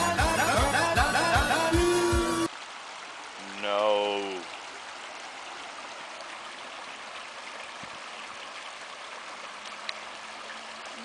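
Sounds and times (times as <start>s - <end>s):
creek water splashing over rocks: 2.5s - 11.0s.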